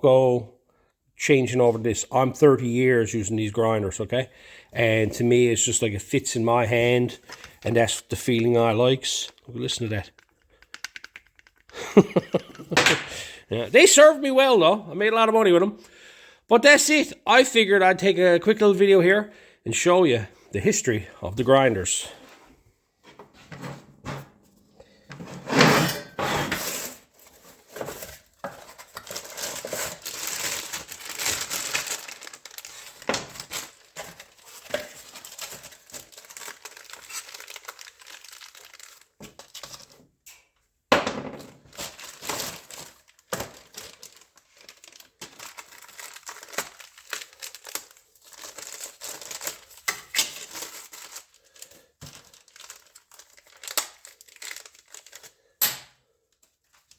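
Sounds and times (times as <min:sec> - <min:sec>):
crinkling and rustling handling noise: 0:01.5 - 0:12.9, 0:26.5 - 0:40.7, 0:41.6 - 0:56.9.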